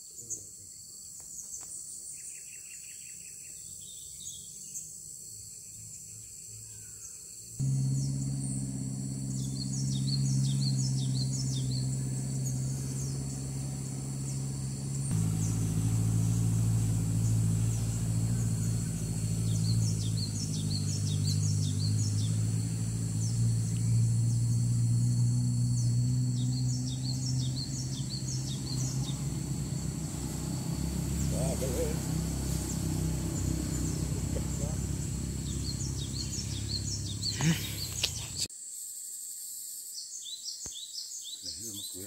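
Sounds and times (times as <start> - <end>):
rapid high bird chirps: 7.6 - 38.5
steady low hum: 7.6 - 38.5.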